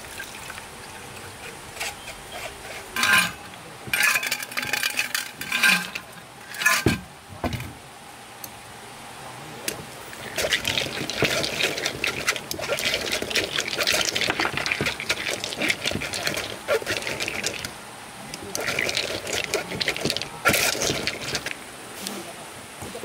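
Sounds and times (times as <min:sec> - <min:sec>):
crackling hiss: 0:00.0 - 0:23.0
liquid splashing as poured: 0:10.2 - 0:17.7, 0:18.4 - 0:21.5.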